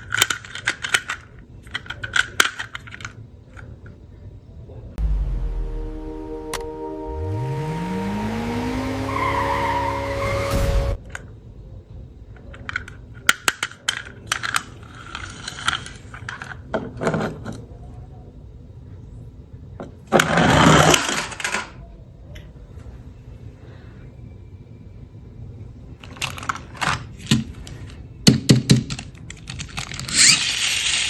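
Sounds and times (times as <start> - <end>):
plastic toy cars clicking and rattling: 0.0 - 4.2, 12.3 - 17.7, 20.1 - 21.8, 26.0 - 31.0
music sting with rising sweep: 5.0 - 11.0.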